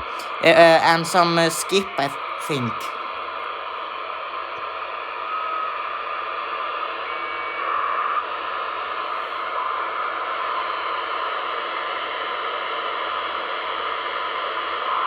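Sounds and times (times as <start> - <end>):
radio static hiss: 0.0 - 3.0.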